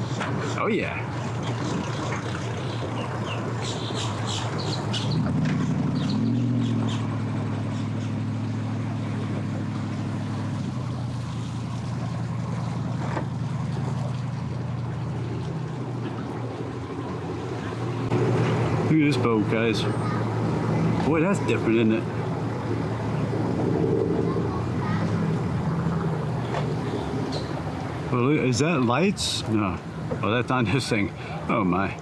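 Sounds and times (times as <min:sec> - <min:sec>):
boat motor running: 0:00.0 - 0:32.0.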